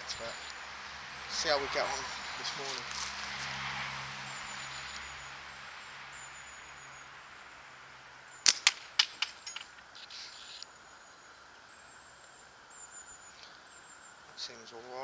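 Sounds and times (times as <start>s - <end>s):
ammo clicking at target: 8.4s - 9.9s
slingshot snap: 8.4s - 10.2s.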